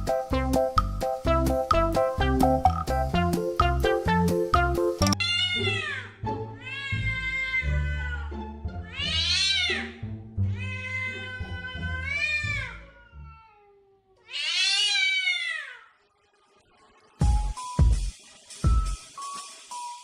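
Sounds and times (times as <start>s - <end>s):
background music: 0.0s - 12.9s, 17.1s - 20.0s
cat meowing loudly: 5.2s - 10.0s, 10.6s - 15.9s.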